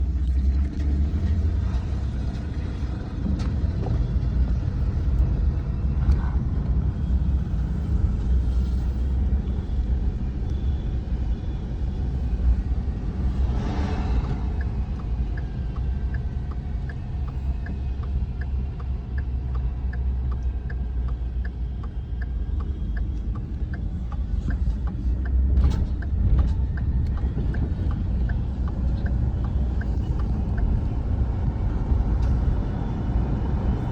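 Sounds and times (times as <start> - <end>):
truck engine and road rumble: 0.0 - 33.9
regular ticking: 9.2 - 32.7.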